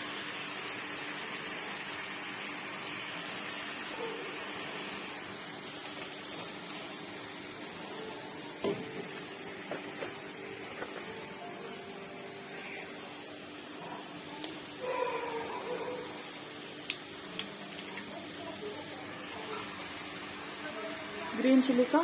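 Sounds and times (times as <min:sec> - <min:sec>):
vegetables sizzling in a pan: 0:00.0 - 0:22.0.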